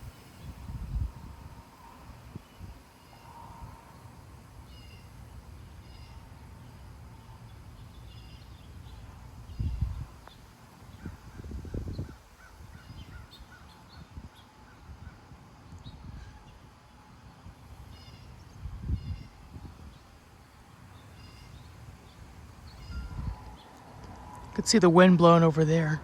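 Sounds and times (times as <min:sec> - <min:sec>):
wind rumbling on microphone: 0:00.0 - 0:16.8, 0:17.4 - 0:20.4, 0:21.1 - 0:25.1
birds chirping: 0:00.0 - 0:26.0.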